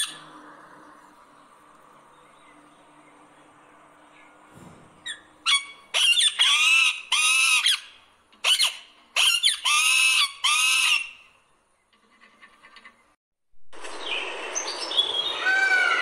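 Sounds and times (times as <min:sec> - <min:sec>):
bird calling loudly: 0:05.0 - 0:11.3.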